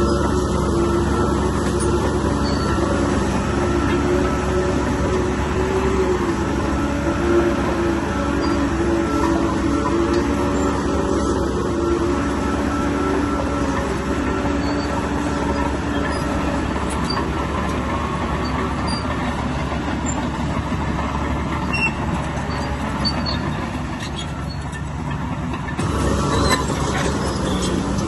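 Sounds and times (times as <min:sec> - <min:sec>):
bulldozer diesel engine running: 0:00.0 - 0:28.0
faint high squeaks and clicks: 0:21.6 - 0:25.0.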